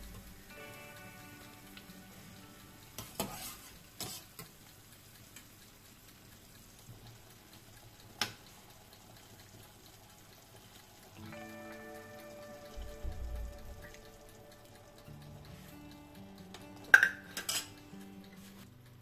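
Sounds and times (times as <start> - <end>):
sauce sizzling: 0.0 - 18.8
pasta clattering into pan: 16.9 - 17.8.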